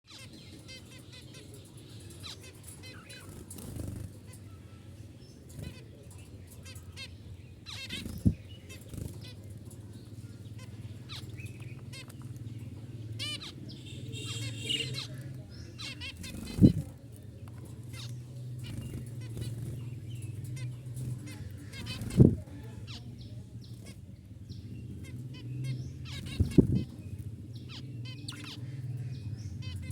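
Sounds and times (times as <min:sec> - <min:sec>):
budgerigars chirping: 0:05.5 - 0:16.9, 0:17.9 - 0:29.9.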